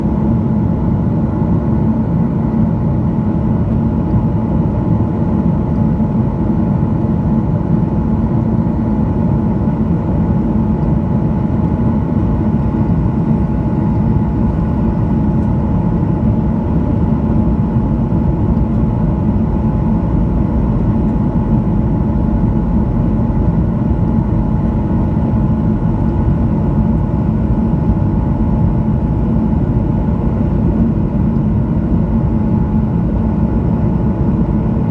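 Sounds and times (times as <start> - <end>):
airplane cabin engine rumble: 0.0 - 34.9
faint constant hum: 0.0 - 34.9.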